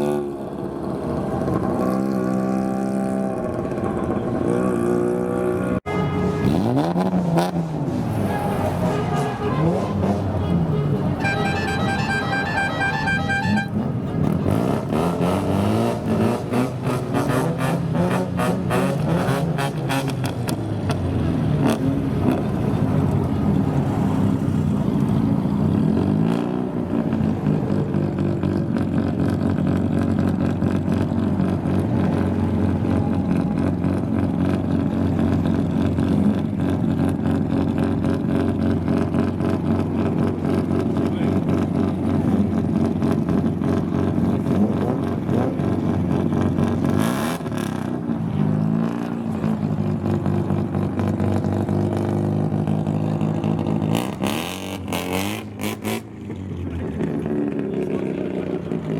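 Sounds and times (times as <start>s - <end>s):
car engine revving: 6.4s - 58.9s.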